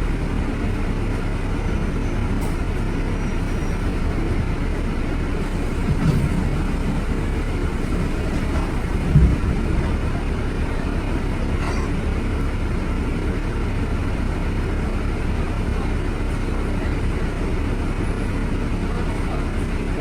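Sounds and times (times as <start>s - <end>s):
city street traffic rumble: 0.0s - 20.0s
low thump: 8.2s - 10.0s.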